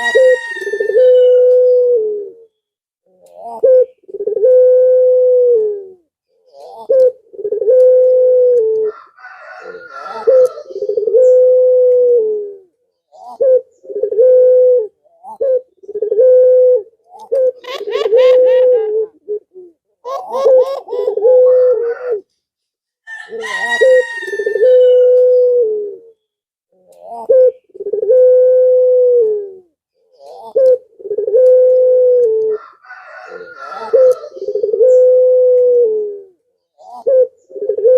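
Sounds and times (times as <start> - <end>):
dove cooing: 0.0 - 22.3, 23.1 - 26.2, 26.8 - 37.9
higher bird chirping: 33.1 - 35.2.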